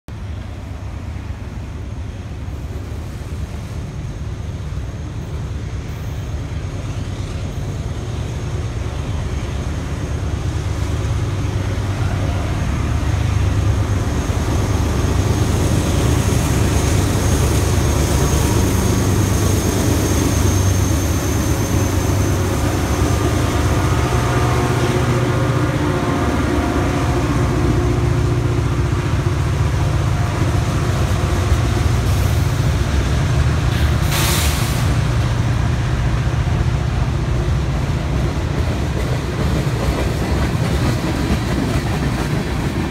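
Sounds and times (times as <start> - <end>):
diesel locomotive drone: 0.1 - 42.9
train wheels rumbling on rail: 0.1 - 42.9
high wheel squeal: 14.1 - 23.8.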